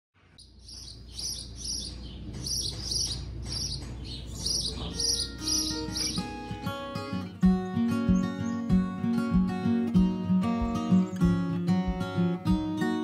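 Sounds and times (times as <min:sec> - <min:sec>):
small bird chirping: 0:00.2 - 0:09.6, 0:10.5 - 0:12.0
music with pitched notes: 0:04.8 - 0:13.0.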